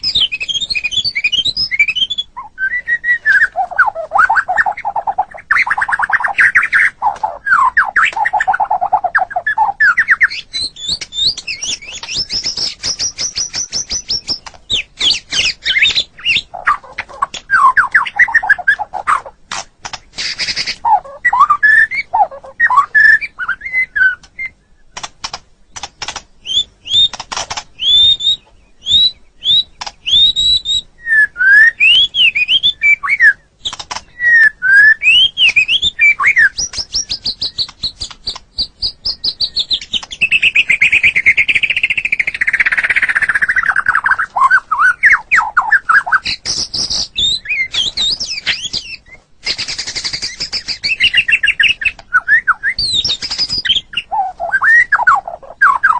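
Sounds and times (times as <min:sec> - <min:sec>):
bird trilling: 0:00.0 - 0:55.9
songbird singing: 0:00.0 - 0:55.9.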